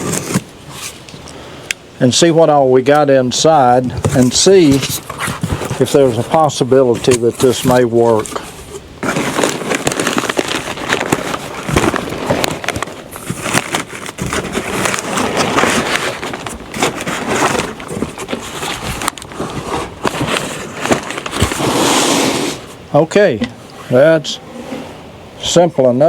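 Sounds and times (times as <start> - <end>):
packaging rustling and scraping: 0.0 - 1.2, 3.6 - 22.8.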